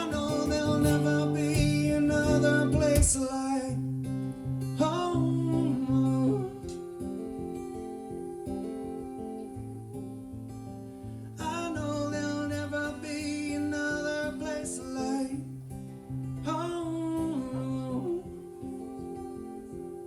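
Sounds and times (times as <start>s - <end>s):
person singing long held lines: 0.0s - 3.8s, 4.8s - 10.2s, 16.4s - 20.0s
acoustic guitar: 0.0s - 20.0s.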